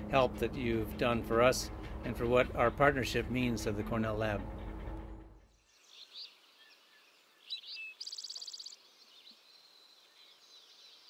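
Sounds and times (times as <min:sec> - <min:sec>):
birdsong chirps: 0:00.0 - 0:11.0
bird trill: 0:05.5 - 0:08.8.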